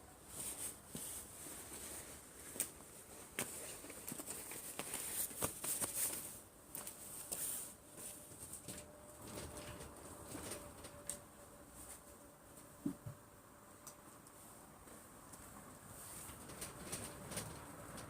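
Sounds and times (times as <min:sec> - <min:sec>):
rustling: 0:00.2 - 0:13.1, 0:14.0 - 0:18.0.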